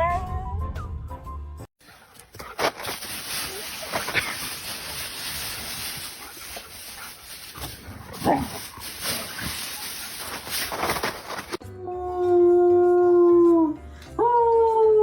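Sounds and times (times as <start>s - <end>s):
background hiss: 1.9s - 11.6s
dog barking: 8.1s - 9.3s.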